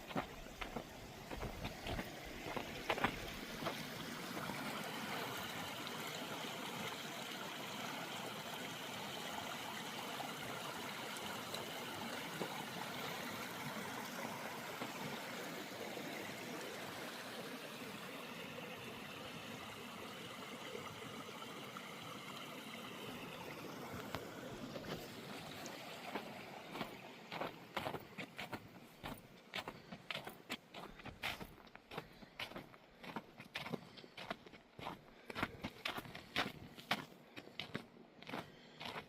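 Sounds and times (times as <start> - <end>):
footsteps on trail: 0.0 - 5.2, 24.0 - 39.0
creek rushing: 0.0 - 31.6.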